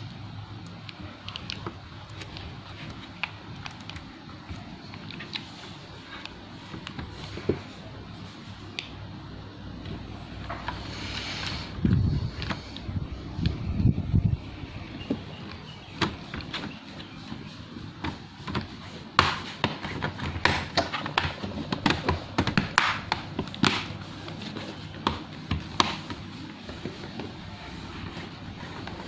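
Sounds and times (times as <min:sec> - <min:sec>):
hands handling laptop parts: 0:01.0 - 0:09.0.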